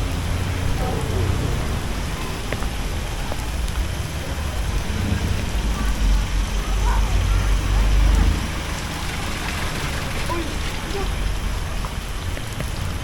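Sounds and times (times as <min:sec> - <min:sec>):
low rumble: 0:00.0 - 0:10.1
sharp drip-like ticks: 0:00.0 - 0:13.0
steady rain: 0:00.0 - 0:13.0.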